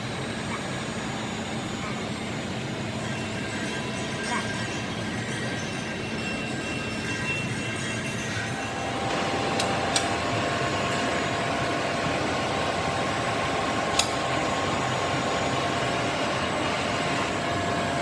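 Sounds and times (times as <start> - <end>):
mechanical running noise with whine: 0.0 - 18.0
sharp clicks: 9.0 - 11.3, 12.1 - 15.4.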